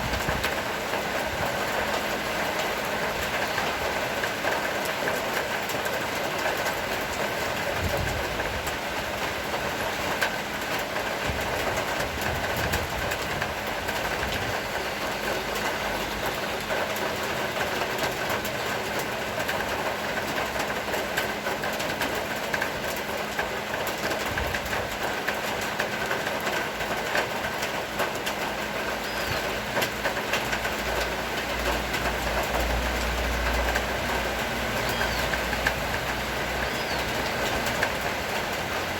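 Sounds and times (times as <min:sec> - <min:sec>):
rain hissing: 0:25.2 - 0:38.9.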